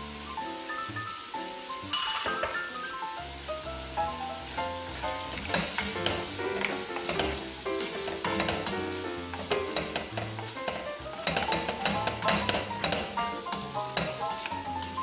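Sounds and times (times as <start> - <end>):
background music: 0.0 - 15.0
meat sizzling in a pot: 0.0 - 15.0
spoon scraping a pot: 5.3 - 15.0.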